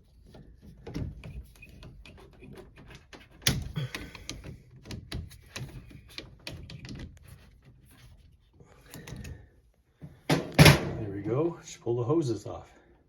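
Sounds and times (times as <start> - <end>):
clicks and knocks of hands working: 0.0 - 8.2.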